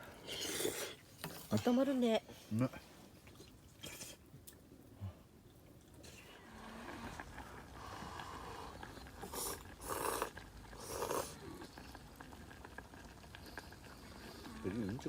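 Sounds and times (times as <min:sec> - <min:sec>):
person slurping soup: 0:00.2 - 0:01.0, 0:06.0 - 0:14.9.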